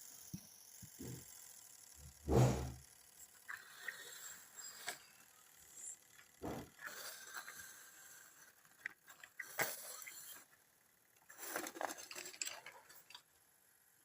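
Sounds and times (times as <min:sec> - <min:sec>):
handling clicks and rustling: 0:11.2 - 0:13.3.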